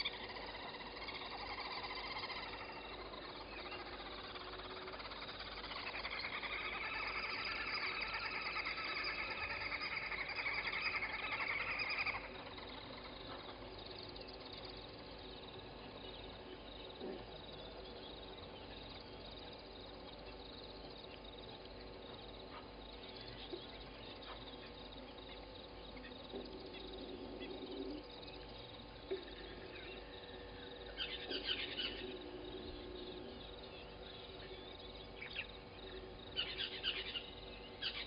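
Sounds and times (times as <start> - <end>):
rapid trilling call: 0.0 - 14.9, 23.0 - 38.0
birds calling: 0.0 - 38.0
frogs calling: 0.0 - 38.0.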